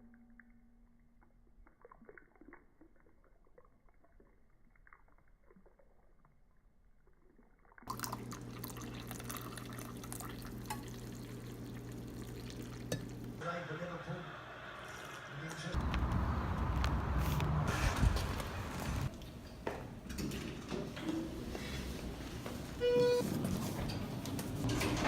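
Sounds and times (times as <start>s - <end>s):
liquid pouring: 1.2s - 13.4s.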